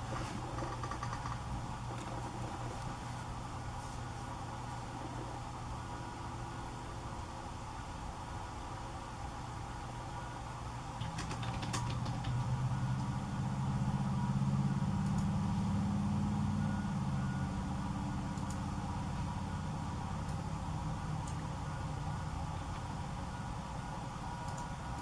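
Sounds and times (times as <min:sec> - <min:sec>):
vehicle engine humming: 0:10.9 - 0:25.0.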